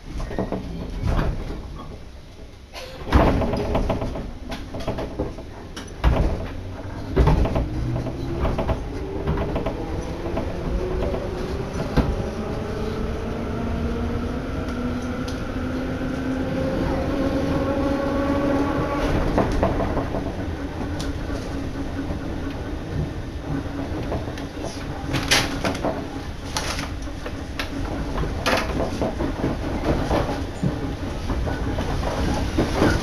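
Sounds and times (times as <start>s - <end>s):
train running rumble: 0.0s - 33.0s
loud knocks and thumps: 3.1s - 11.3s.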